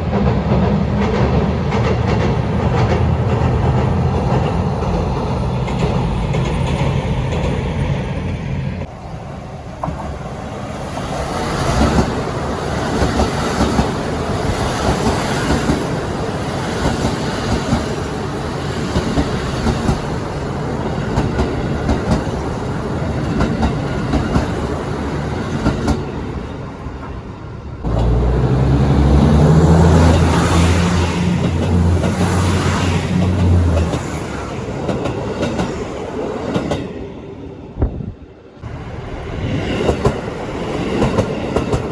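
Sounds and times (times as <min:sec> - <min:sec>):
train rolling noise: 0:00.0 - 0:41.9
train wheels clacking over rail joints: 0:09.8 - 0:27.2, 0:27.8 - 0:35.9, 0:39.6 - 0:41.9.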